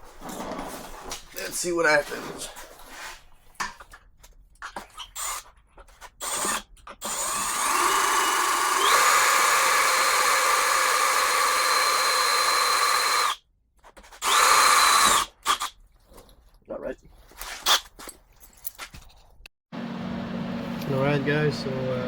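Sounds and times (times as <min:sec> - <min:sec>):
power drill drilling into metal: 0:06.2 - 0:13.4, 0:14.2 - 0:15.7.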